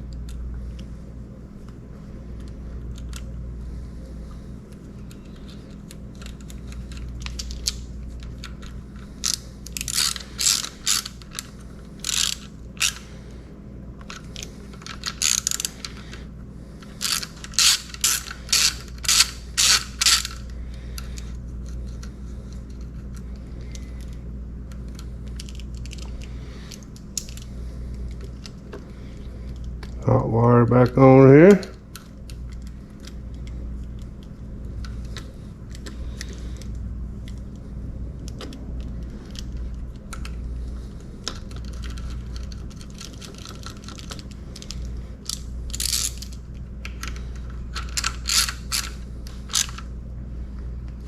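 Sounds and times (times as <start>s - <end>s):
steady low hum: 0.0s - 51.0s
socket ratchet clicking: 5.1s - 13.0s, 17.0s - 20.5s, 41.3s - 49.9s.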